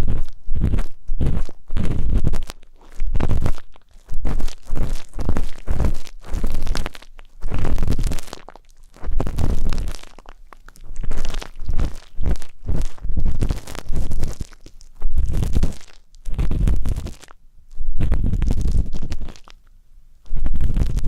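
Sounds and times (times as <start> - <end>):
ear-pick scraping microphone: 0.0 - 10.1, 10.8 - 19.4, 20.3 - 21.0.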